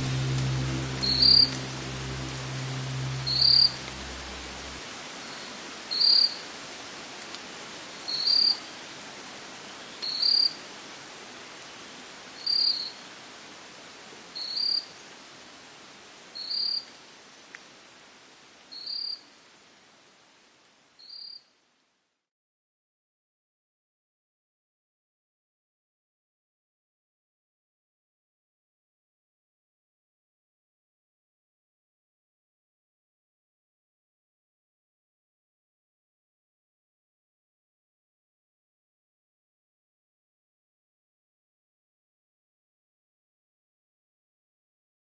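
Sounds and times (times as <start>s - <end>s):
low hum: 0.0s - 4.8s
steady hiss: 0.0s - 14.4s.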